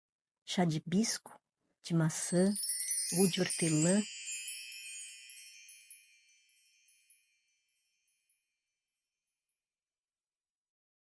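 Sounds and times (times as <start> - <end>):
wind chimes tinkling: 2.1 - 8.5.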